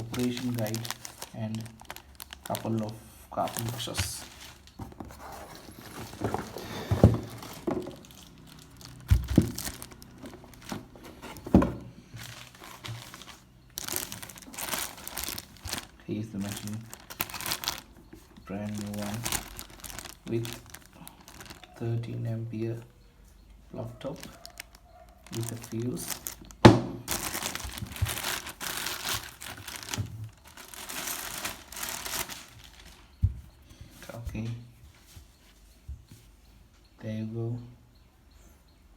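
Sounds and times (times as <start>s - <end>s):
plastic packaging crinkling: 0.0s - 22.1s, 24.1s - 33.2s
dull knocks of tool and box: 5.9s - 8.0s, 10.8s - 11.9s.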